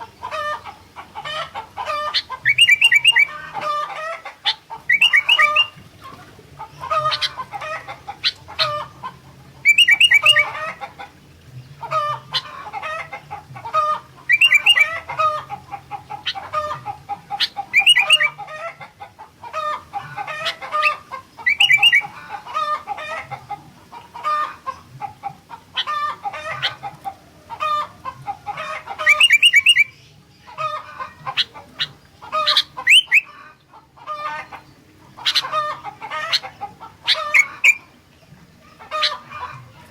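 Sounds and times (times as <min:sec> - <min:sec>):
bulbul singing: 0:02.1 - 0:03.6, 0:04.4 - 0:06.1, 0:06.7 - 0:12.5, 0:14.2 - 0:15.1, 0:17.3 - 0:18.4, 0:20.8 - 0:22.2, 0:28.9 - 0:33.3, 0:34.6 - 0:39.2
loud bird trill: 0:02.2 - 0:03.4, 0:04.9 - 0:05.8, 0:09.7 - 0:10.6, 0:14.3 - 0:15.0, 0:17.4 - 0:18.4, 0:20.9 - 0:22.1, 0:29.0 - 0:30.1, 0:31.3 - 0:33.3, 0:37.1 - 0:37.9.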